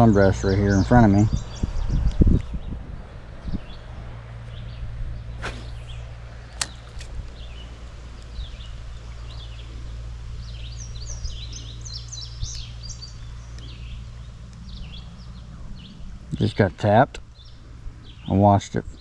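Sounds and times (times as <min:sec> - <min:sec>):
songbirds chirping: 0:00.0 - 0:19.0
steady low rumble: 0:00.8 - 0:18.1
swish: 0:05.4 - 0:06.7
sharp click: 0:05.4 - 0:07.4.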